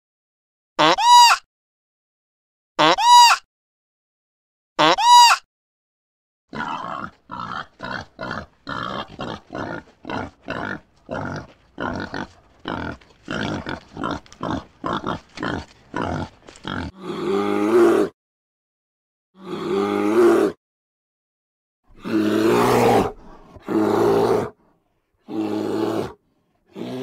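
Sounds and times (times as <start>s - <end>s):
boar grunting: 6.5s - 18.1s, 21.9s - 27.0s.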